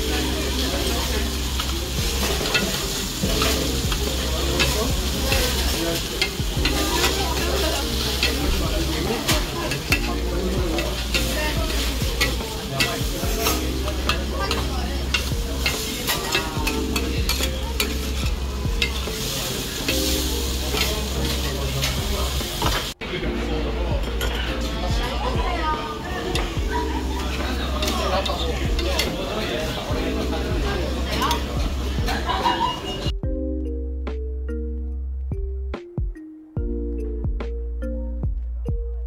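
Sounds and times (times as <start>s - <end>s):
food sizzling with crackling pops: 0.0s - 23.0s
background music: 0.0s - 39.0s.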